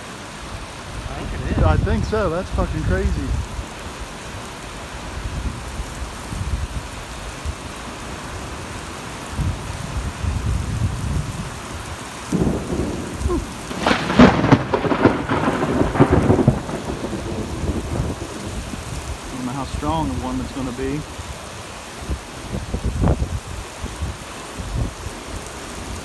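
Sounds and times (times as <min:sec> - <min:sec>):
steady rain: 0:00.0 - 0:26.0
thunder rumble: 0:00.6 - 0:03.8, 0:09.3 - 0:21.4.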